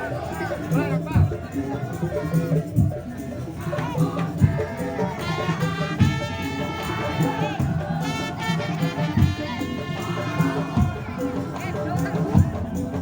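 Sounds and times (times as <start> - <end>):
heavy drum beats: 4.1 - 13.0.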